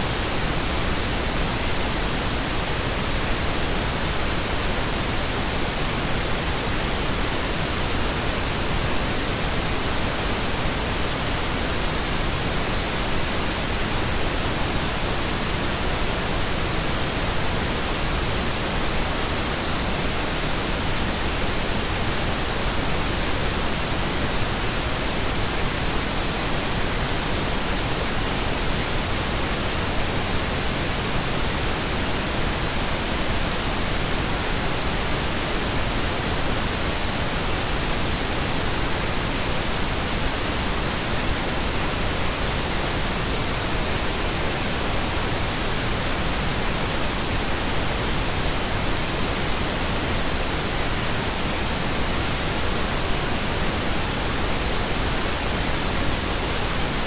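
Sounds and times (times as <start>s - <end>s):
pink noise hiss: 0.0s - 57.0s.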